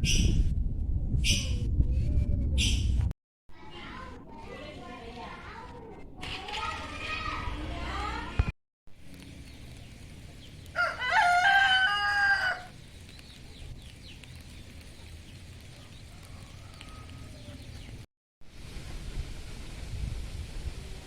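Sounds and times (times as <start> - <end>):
rooster crowing: 10.8 - 12.7, 15.8 - 17.7.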